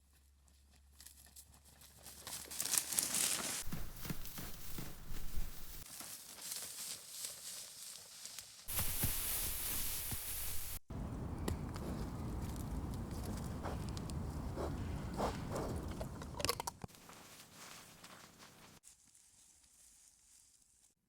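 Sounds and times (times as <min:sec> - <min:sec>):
rustling and crackling: 0:01.2 - 0:20.9
steady hiss: 0:08.7 - 0:10.8.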